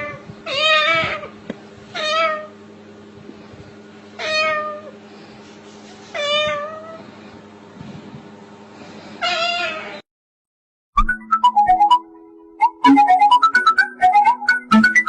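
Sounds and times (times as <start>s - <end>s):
cat meowing: 0.0s - 1.3s, 2.0s - 2.5s, 4.2s - 4.9s, 6.1s - 7.0s, 9.2s - 10.0s
steady low hum: 0.0s - 9.2s.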